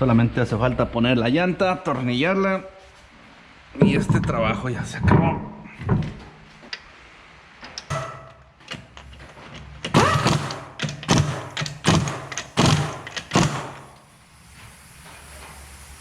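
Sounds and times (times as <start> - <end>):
knocks from wheel and nuts: 7.8 - 14.0
power wrench bursts: 9.8 - 14.0.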